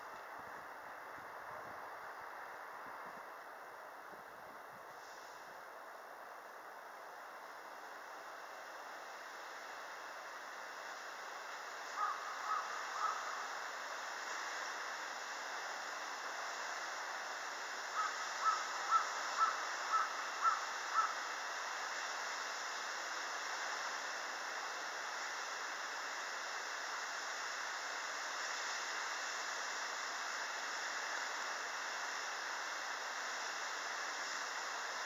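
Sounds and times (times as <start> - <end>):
steady outdoor hiss: 0.0 - 35.0
bird calling: 12.0 - 13.4, 18.0 - 21.2.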